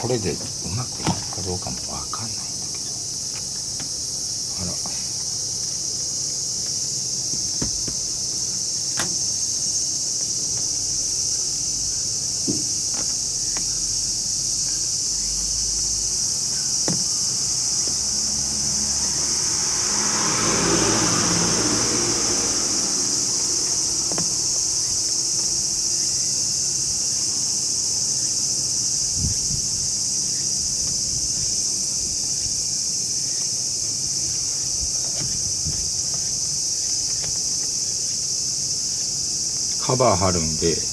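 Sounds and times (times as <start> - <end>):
insects shrilling: 0.0 - 40.9
vehicle passing: 15.4 - 25.8.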